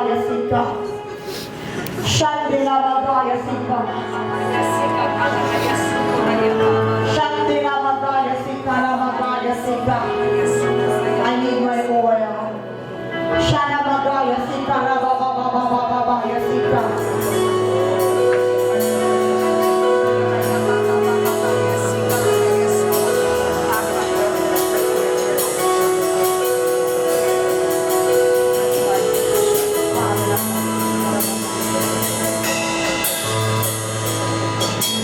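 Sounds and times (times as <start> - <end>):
keyboard chords: 0.0 - 35.0
bass line: 16.7 - 35.0.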